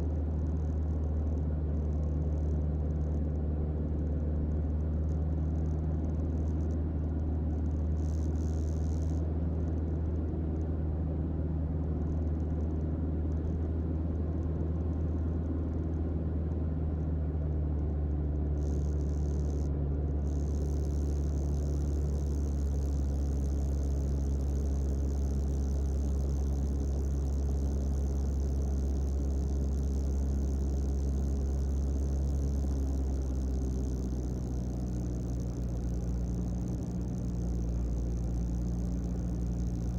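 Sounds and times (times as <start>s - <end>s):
aircraft engine running: 20.3s - 39.9s.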